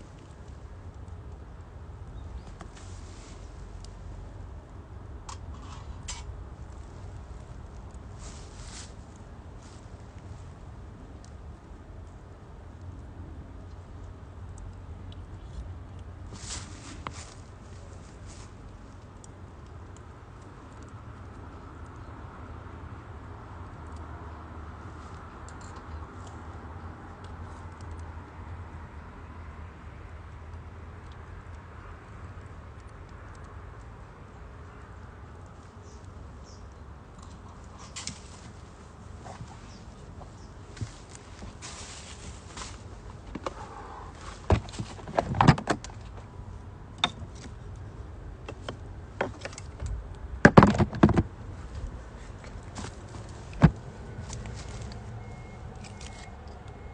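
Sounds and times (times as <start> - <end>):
wood fire crackling: 0.0 - 44.6
low fire rumble: 0.0 - 45.1.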